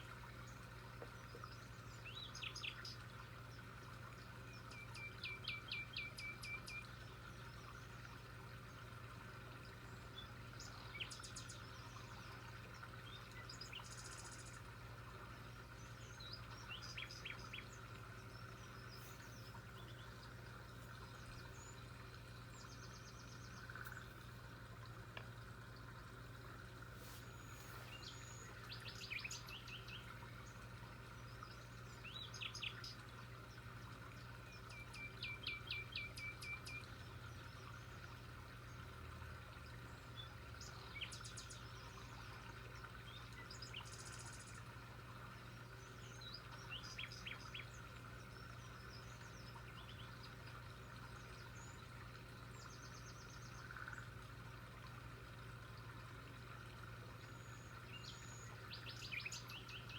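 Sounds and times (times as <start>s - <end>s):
small birds chirping: 15.8s - 24.3s, 26.9s - 33.0s, 45.8s - 54.1s, 57.2s - 59.9s.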